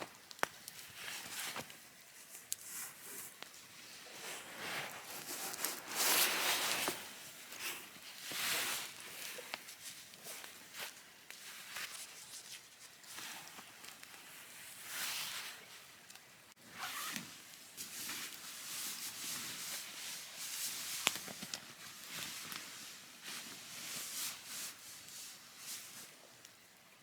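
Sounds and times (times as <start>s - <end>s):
rustling and scuffing: 0.7s - 15.6s.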